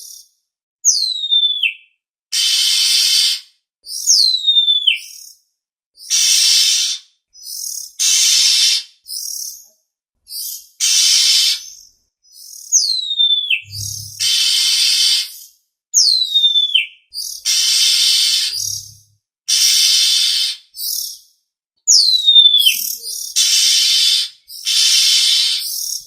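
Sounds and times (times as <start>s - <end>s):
bird whistles sliding down: 2.4s - 3.4s, 6.1s - 7.0s, 8.0s - 8.8s, 10.8s - 11.7s, 13.6s - 15.4s, 17.5s - 18.8s, 19.5s - 20.6s, 23.4s - 26.0s
bird harsh rasping calls: 2.4s - 5.1s, 6.0s - 9.5s, 10.4s - 15.5s, 16.2s - 21.2s, 21.9s - 26.0s.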